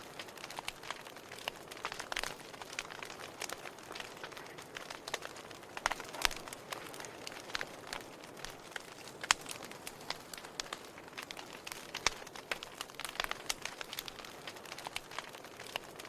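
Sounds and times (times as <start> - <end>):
fire pops and snaps: 0.0 - 16.0
wood fire crackling: 0.0 - 16.0.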